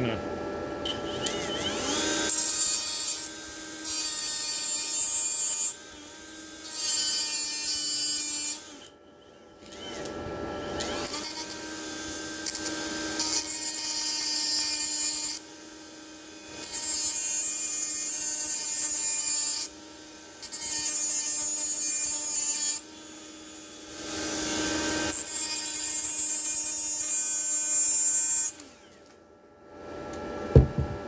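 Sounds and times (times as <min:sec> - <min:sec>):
electric grinder humming: 0:01.2 - 0:08.8.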